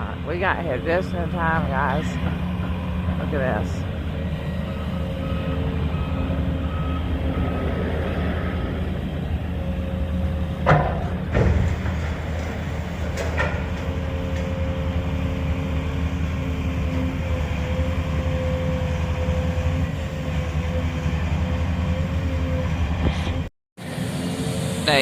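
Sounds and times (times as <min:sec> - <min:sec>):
steady machine whine: 0:00.0 - 0:11.4
demolition machinery engine drone: 0:00.0 - 0:25.0
sharp knocks: 0:10.6 - 0:12.5.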